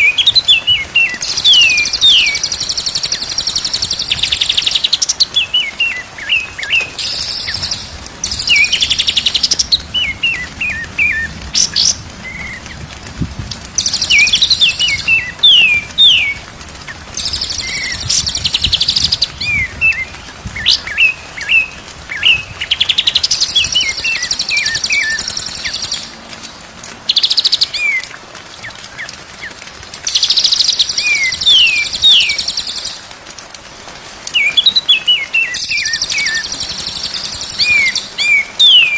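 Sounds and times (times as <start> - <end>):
bird whistling song: 0.0 - 12.6, 13.8 - 16.4, 17.2 - 26.1, 30.3 - 33.0, 34.4 - 38.9.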